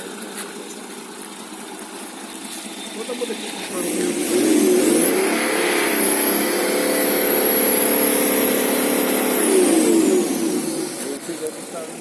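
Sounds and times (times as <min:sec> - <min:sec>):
diesel engine revving: 0:02.5 - 0:12.0
high turbo whistle: 0:04.8 - 0:11.0.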